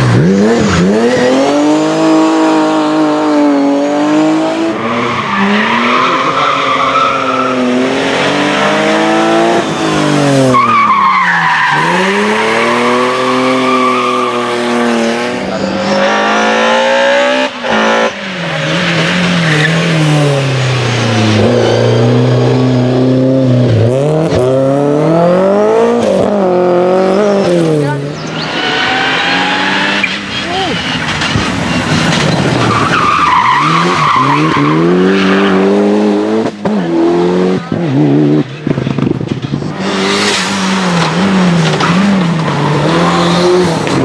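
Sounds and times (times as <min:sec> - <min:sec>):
race car engine revving: 0:00.0 - 0:44.0
tyres squealing: 0:04.7 - 0:16.0, 0:27.0 - 0:35.7.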